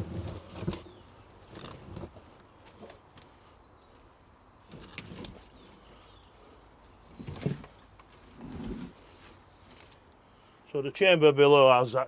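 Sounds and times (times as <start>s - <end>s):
knocks and scrapes: 0.0s - 3.0s, 7.0s - 10.1s.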